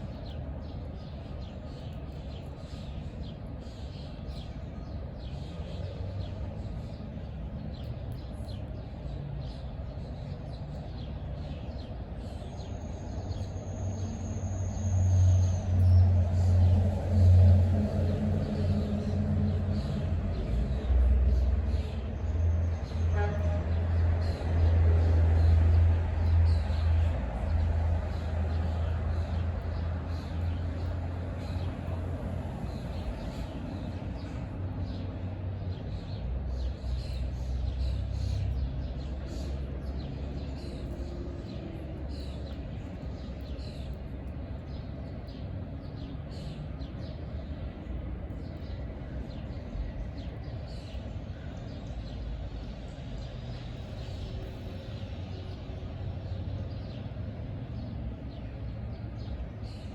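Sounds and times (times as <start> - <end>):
small birds chirping: 26.5 - 59.9.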